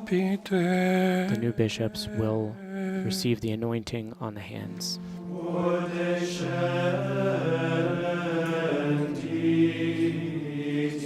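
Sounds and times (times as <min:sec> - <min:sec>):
men chanting in unison: 0:05.3 - 0:11.0.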